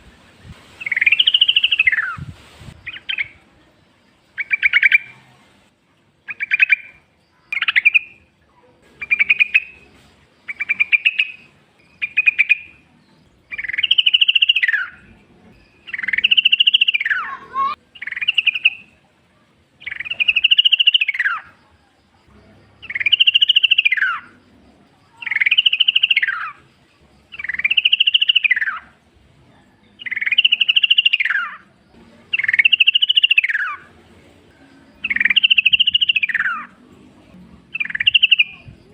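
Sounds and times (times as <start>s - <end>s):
bird rising and falling calls: 0.8s - 3.4s, 13.5s - 15.1s, 15.8s - 18.9s, 19.8s - 21.5s, 22.8s - 24.3s, 25.2s - 26.6s, 27.4s - 29.0s, 30.0s - 31.6s, 32.3s - 33.9s, 35.0s - 36.8s, 37.7s - 38.8s.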